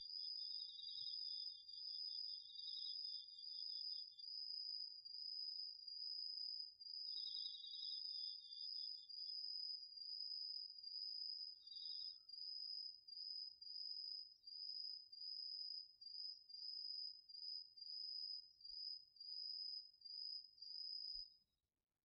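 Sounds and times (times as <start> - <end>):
cricket trilling: 0.0 - 14.2.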